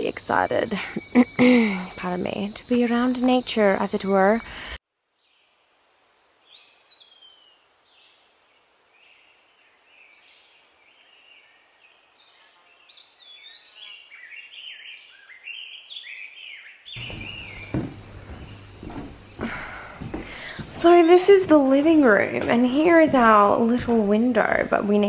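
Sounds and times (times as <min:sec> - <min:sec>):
birds whistling calls: 0:13.0 - 0:22.8
knocks: 0:17.0 - 0:24.0.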